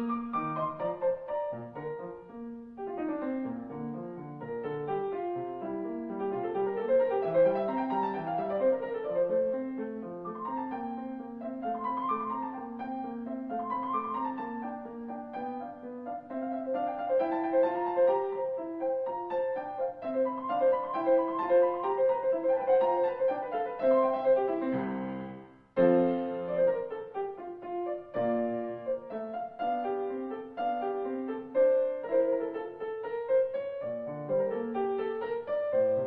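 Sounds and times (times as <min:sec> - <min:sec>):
piano music: 0:00.0 - 0:36.0.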